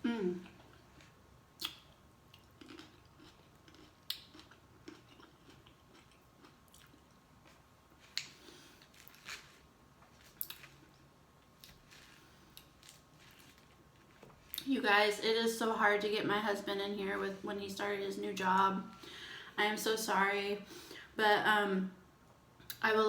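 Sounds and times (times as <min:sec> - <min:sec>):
person chewing: 0:00.1 - 0:14.6.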